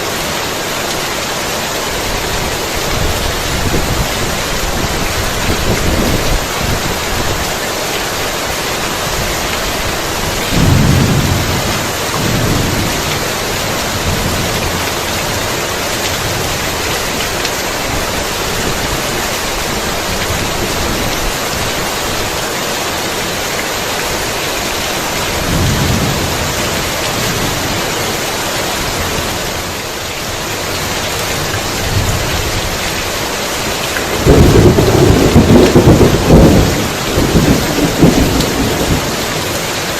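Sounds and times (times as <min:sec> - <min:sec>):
heavy rain: 0:00.0 - 0:39.9
thunder rumbling: 0:10.2 - 0:17.0, 0:25.3 - 0:28.0, 0:34.1 - 0:39.6.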